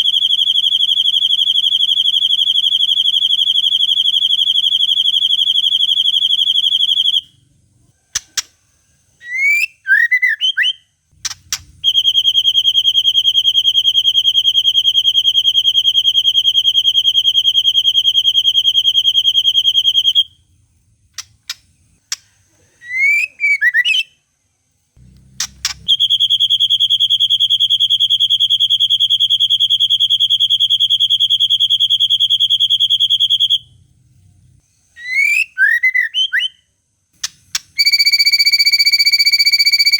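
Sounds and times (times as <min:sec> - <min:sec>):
faint low hum: 0:00.0 - 0:09.4, 0:11.0 - 0:14.6, 0:15.2 - 0:23.1, 0:24.1 - 0:35.1
sharp bird clicks: 0:08.1 - 0:08.6, 0:11.2 - 0:11.9, 0:21.1 - 0:22.4, 0:25.4 - 0:26.0, 0:37.2 - 0:37.8.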